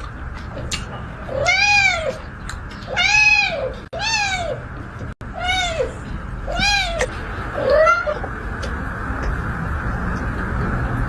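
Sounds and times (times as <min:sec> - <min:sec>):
cat meowing: 0:01.3 - 0:02.3, 0:02.9 - 0:04.6, 0:05.3 - 0:08.2.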